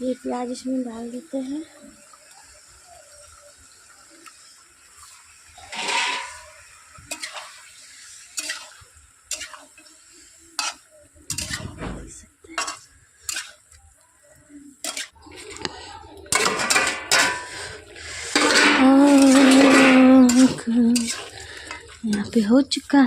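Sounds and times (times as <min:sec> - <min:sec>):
onions frying in a pot: 0:00.0 - 0:23.0
spoon scraping a pot: 0:05.6 - 0:07.4, 0:10.6 - 0:11.7, 0:14.8 - 0:15.2, 0:16.3 - 0:22.4.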